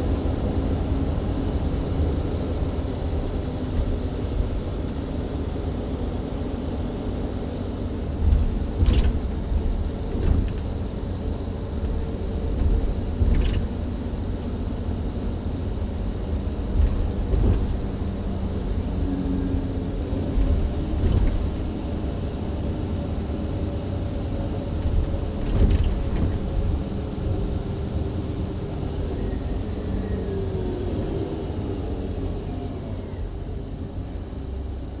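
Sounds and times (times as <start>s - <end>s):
bus engine and road rumble: 0.0s - 35.0s
sharp rattles and knocks: 3.6s - 5.2s, 8.1s - 14.5s, 16.2s - 18.8s, 20.2s - 22.4s, 24.5s - 27.6s.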